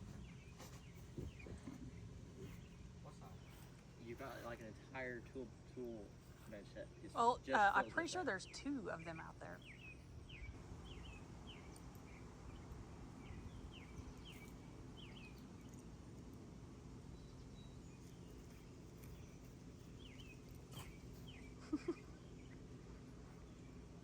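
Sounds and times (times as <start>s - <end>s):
bird chirping: 0.0s - 16.0s, 17.1s - 22.6s
low steady hum: 0.0s - 24.0s.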